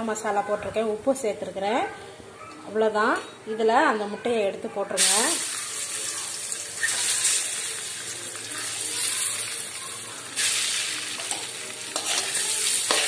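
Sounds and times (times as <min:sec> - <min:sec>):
eggs sizzling in oil: 0:05.0 - 0:13.0.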